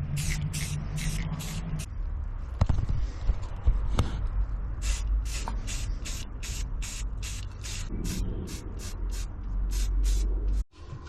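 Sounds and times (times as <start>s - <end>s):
spray paint can hissing: 0.0s - 1.9s, 4.8s - 10.6s.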